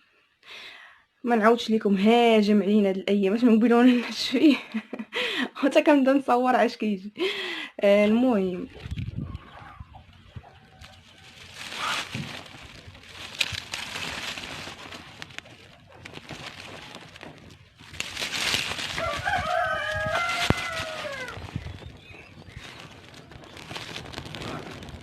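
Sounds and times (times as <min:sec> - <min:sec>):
rooster crowing: 0:18.9 - 0:21.4.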